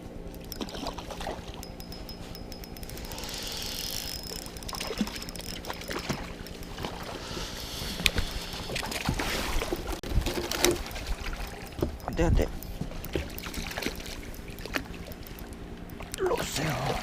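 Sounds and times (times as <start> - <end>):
fishing reel clicking: 0.3 - 8.8, 11.2 - 16.2.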